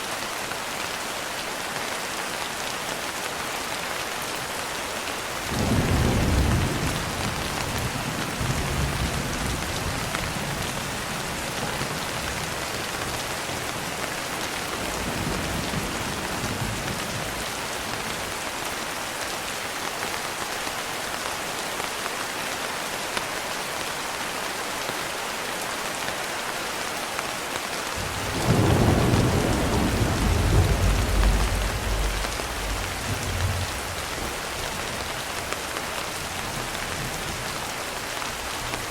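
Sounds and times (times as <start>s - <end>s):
steady rainfall: 0.0s - 38.9s
rolling thunder: 5.5s - 10.6s, 28.0s - 35.4s.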